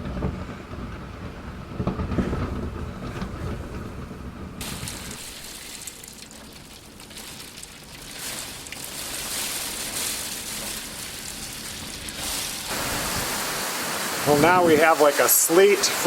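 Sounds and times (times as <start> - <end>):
sleet in strong wind: 0.0 - 5.2, 12.2 - 14.9.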